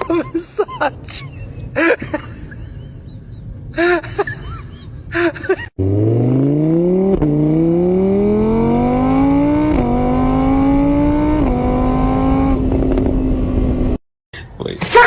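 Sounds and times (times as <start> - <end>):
engine accelerating through gears: 5.8 - 14.0.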